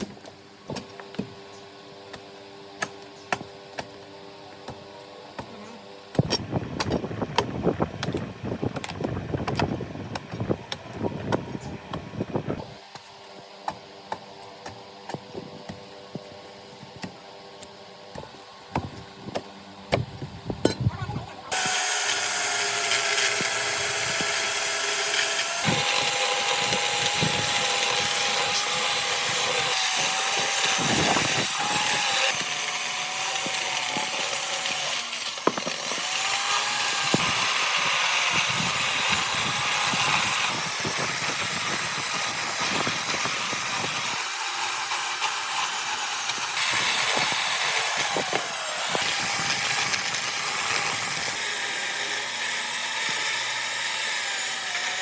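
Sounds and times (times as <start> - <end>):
power tool whining on wood: 21.5 - 55.0.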